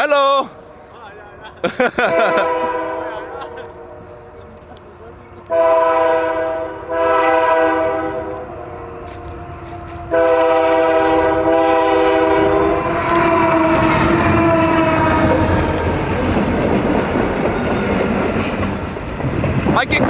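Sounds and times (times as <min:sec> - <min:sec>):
passing train rumble and clatter: 0:00.0 - 0:20.0
locomotive air horn blasts: 0:02.0 - 0:04.2, 0:05.4 - 0:15.6.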